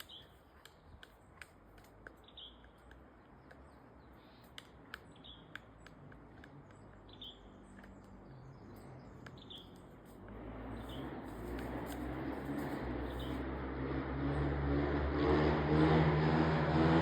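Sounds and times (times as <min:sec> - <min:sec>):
bird chirping: 0:00.0 - 0:13.5
rustling noise: 0:11.1 - 0:13.4.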